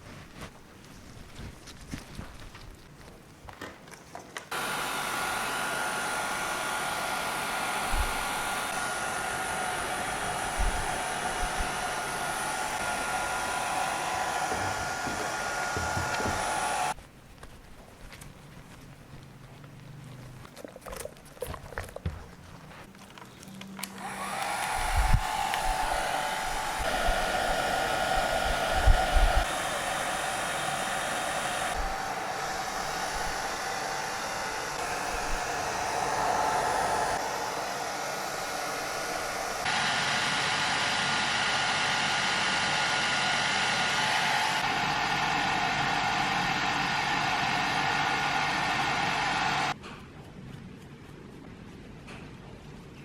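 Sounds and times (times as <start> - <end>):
hair dryer blowing: 4.5 - 17.0, 23.9 - 49.8.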